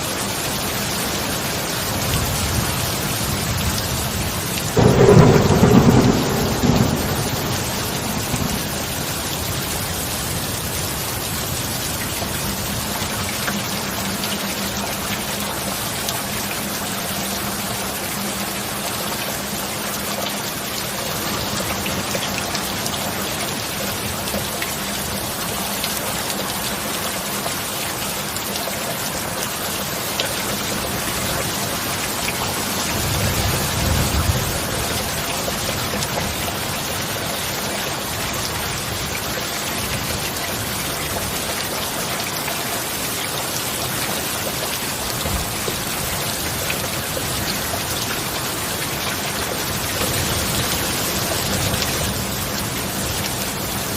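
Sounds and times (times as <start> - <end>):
heavy rain falling: 0.0 - 53.9
thunder rumble: 3.3 - 10.4.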